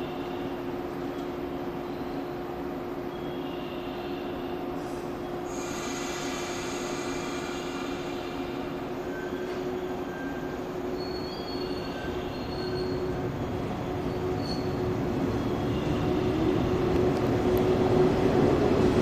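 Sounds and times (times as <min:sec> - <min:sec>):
electric train pulling away: 0:04.9 - 0:19.0.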